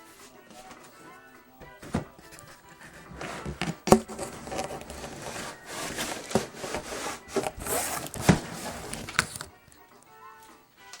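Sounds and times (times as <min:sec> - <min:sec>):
cardboard scraping and rubbing: 0:01.6 - 0:09.6.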